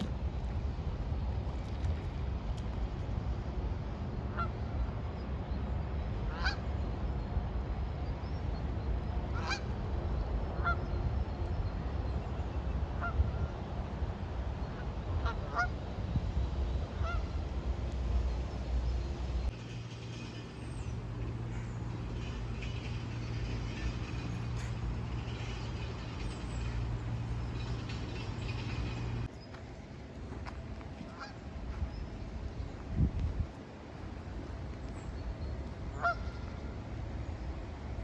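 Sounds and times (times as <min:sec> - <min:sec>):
steady low rumble: 0:00.0 - 0:38.0
waterfowl honking: 0:06.3 - 0:06.6, 0:09.3 - 0:09.7, 0:10.6 - 0:10.8, 0:15.2 - 0:15.7, 0:17.0 - 0:17.3, 0:36.0 - 0:36.5.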